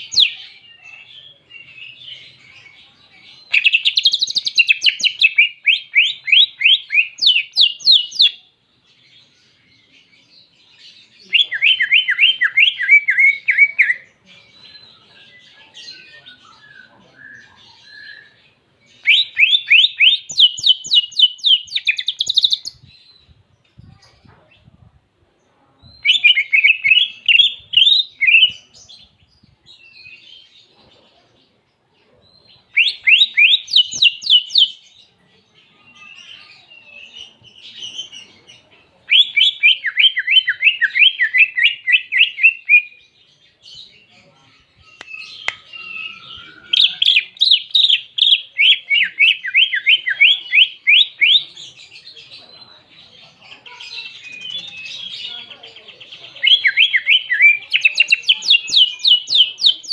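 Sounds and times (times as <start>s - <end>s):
soft bird twittering: 9.0s - 24.2s, 32.3s - 59.9s.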